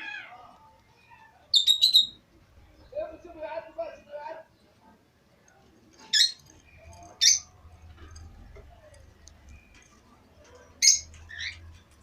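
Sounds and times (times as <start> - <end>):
pet birds chirping: 0.9 - 4.7, 6.0 - 8.3, 8.9 - 12.0.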